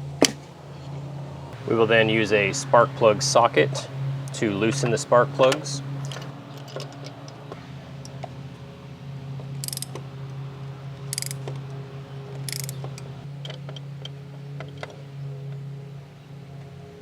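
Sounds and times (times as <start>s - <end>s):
steady low hum: 0.0s - 13.3s
light tool ticks: 9.6s - 10.0s, 11.1s - 11.7s, 12.4s - 13.1s
ratchet wrench clicking: 9.6s - 10.0s, 11.0s - 11.6s, 12.4s - 13.1s.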